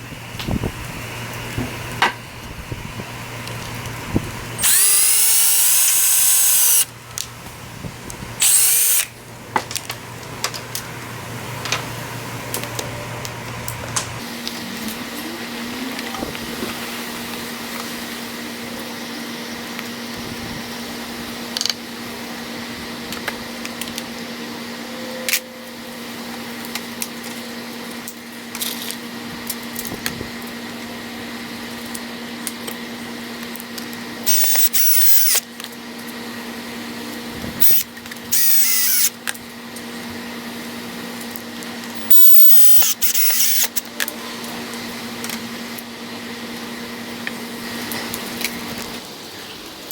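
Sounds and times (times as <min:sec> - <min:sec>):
steady hum: 0:00.0 - 0:17.4, 0:34.3 - 0:35.4, 0:41.8 - 0:43.8
power drill driving screws: 0:04.6 - 0:06.9, 0:08.4 - 0:09.1, 0:34.3 - 0:35.4, 0:37.6 - 0:39.1, 0:42.0 - 0:43.8.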